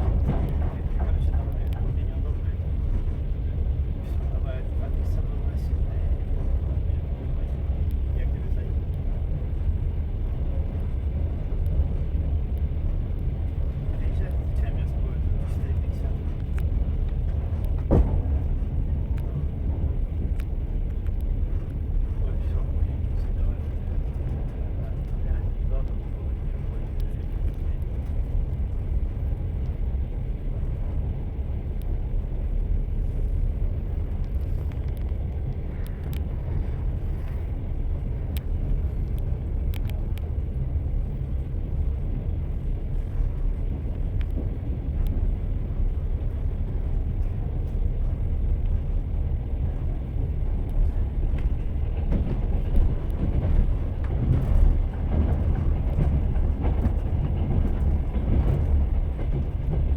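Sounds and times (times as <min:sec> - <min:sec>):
train knocks: 0:00.0 - 0:03.9, 0:15.2 - 0:21.7, 0:50.4 - 0:59.9
train wheels rumbling on rails: 0:00.0 - 0:59.9.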